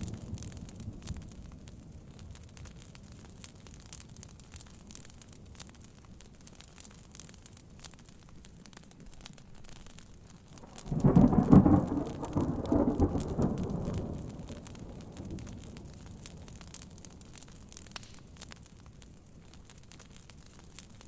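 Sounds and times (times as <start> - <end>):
faint rain: 0.0 - 21.0
wood fire crackling: 0.0 - 21.0
thunder rolling: 10.6 - 16.4.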